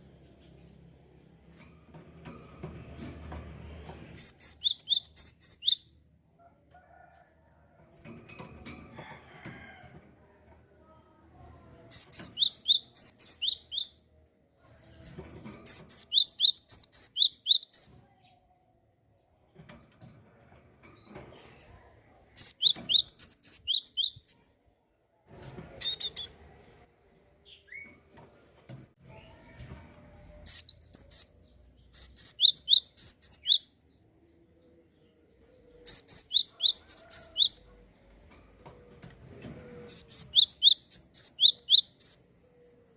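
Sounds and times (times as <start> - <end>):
songbird rapid high chirps: 4.2 - 5.9, 11.9 - 14.0, 15.7 - 17.9, 22.4 - 24.5, 30.5 - 33.7, 35.9 - 37.6, 39.9 - 42.2.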